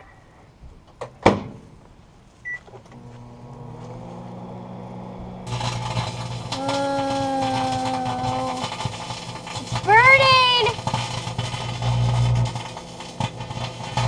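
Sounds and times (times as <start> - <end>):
microwave electrical hum: 0.0 - 14.0
crackling hiss of arcing: 5.4 - 14.0.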